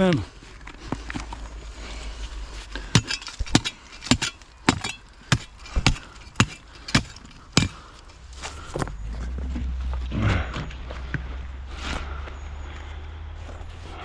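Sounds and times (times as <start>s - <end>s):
spade chopping into hard ground: 2.9s - 8.8s.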